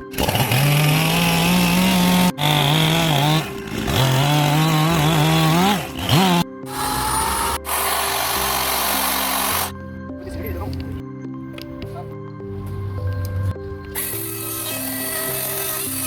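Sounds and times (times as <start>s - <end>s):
chainsaw cutting wood: 0.0s - 9.7s, 14.0s - 16.0s.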